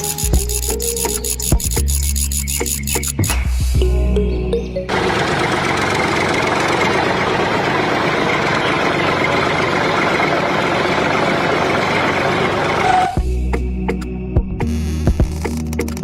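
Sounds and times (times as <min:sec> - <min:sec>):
small motor buzzing rattle: 0:00.0 - 0:03.3.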